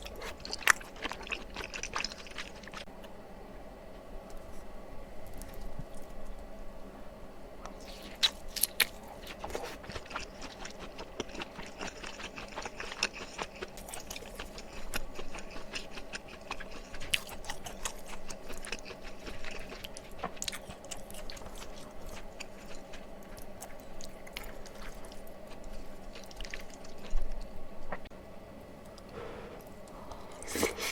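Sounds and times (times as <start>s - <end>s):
close-miked wet chewing: 0.0s - 2.9s, 7.7s - 28.1s.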